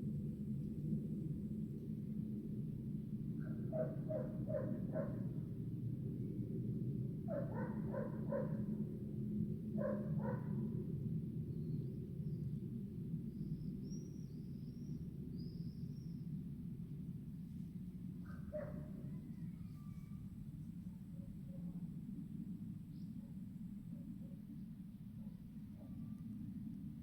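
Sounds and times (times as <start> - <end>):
animal barking calls: 7.3 - 8.6.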